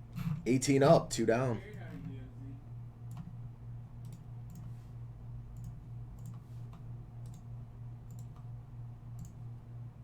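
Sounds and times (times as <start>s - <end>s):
low electrical hum: 0.0s - 10.0s
computer mouse clicking: 3.1s - 3.3s, 4.0s - 4.7s, 5.6s - 7.5s, 8.1s - 8.5s, 9.1s - 9.4s.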